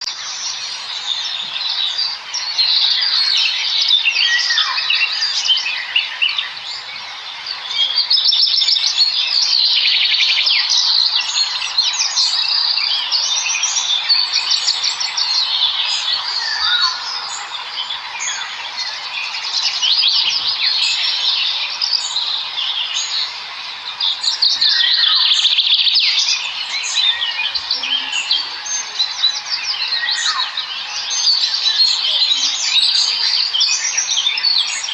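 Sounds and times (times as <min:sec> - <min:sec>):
flock of small birds chirping: 0:00.0 - 0:34.9.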